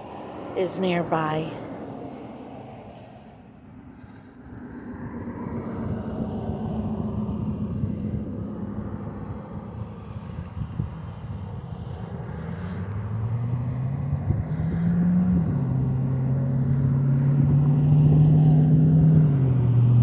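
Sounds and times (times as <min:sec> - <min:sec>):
car engine accelerating: 0:12.0 - 0:20.0.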